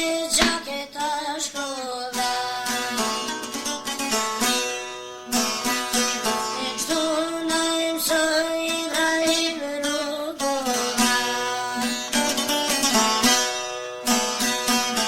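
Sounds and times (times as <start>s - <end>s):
person singing long notes: 0.0s - 3.7s, 6.1s - 12.7s
plucked string instrument: 0.0s - 15.0s.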